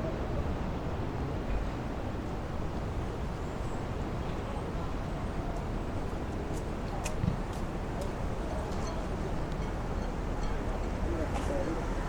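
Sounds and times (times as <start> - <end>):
faint indistinct voices: 4.4 - 12.0.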